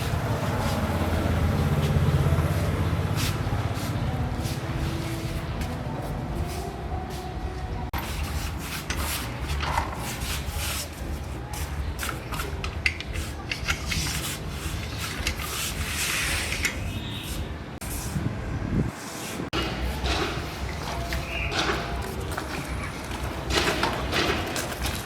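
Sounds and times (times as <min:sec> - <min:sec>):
scraping and clattering knocks: 0:19.5 - 0:25.0.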